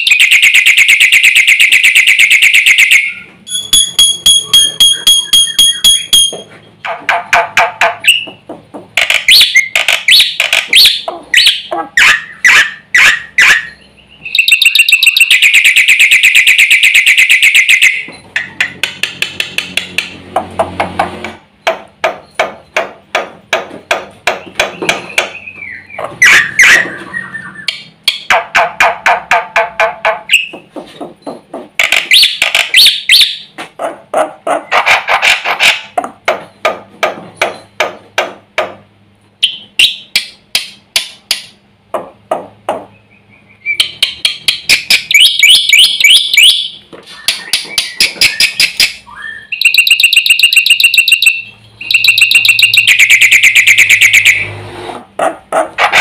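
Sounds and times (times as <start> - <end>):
bird singing with harsh calls: 0.0 - 6.4, 9.1 - 18.6, 24.3 - 28.3, 42.9 - 54.6
rapid rattling bird trill: 7.2 - 19.0, 24.2 - 33.5, 43.0 - 54.5.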